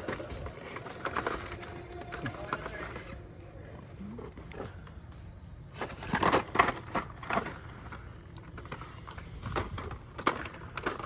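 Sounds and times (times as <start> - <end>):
plastic packaging crinkling and clacking: 0.0 - 3.2, 5.8 - 11.0.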